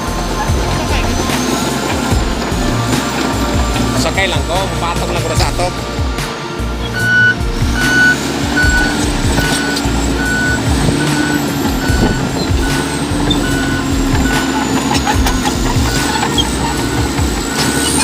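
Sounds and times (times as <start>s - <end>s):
heavy diesel machine running: 0.0s - 18.0s
reversing alarm beeps: 6.8s - 18.0s
knocks and clanks: 6.9s - 18.0s.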